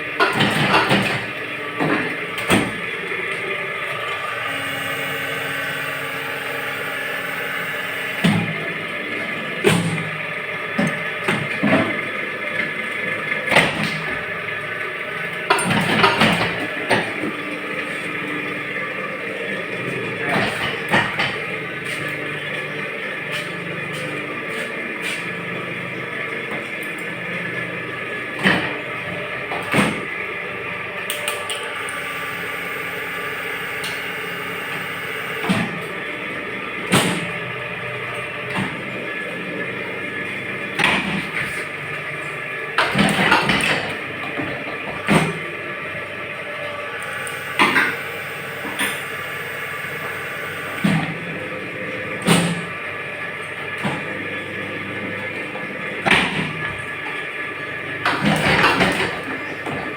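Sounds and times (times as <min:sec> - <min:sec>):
moulding machine humming: 0:00.0 - 0:10.7, 0:31.3 - 0:40.5, 0:46.2 - 0:52.2.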